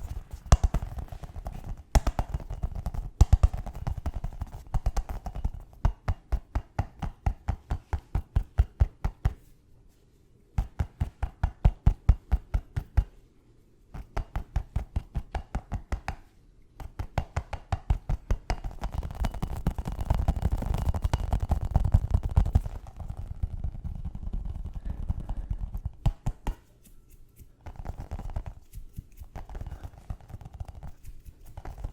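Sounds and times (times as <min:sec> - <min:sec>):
continuous scratching: 0:00.0 - 0:05.2, 0:18.6 - 0:31.9
fast tapping on hard object: 0:00.0 - 0:09.4, 0:10.6 - 0:13.2, 0:14.0 - 0:31.9.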